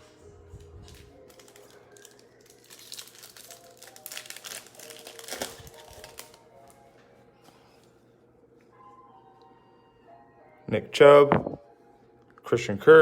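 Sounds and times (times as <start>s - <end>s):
faint background music: 0.0s - 13.0s
card pack wrapper crinkling: 0.8s - 6.4s.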